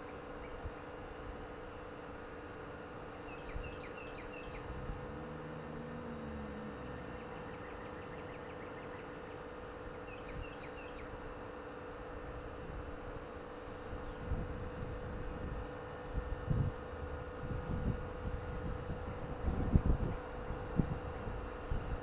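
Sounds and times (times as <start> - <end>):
steady low hum: 0.0 - 22.0
low wind rumble: 3.4 - 10.6, 13.8 - 22.0.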